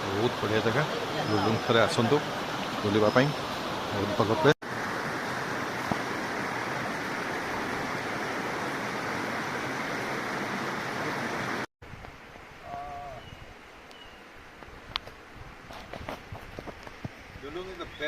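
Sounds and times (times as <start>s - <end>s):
stream and waterfall rushing: 0.0s - 15.6s
brief wavering call: 12.6s - 13.4s.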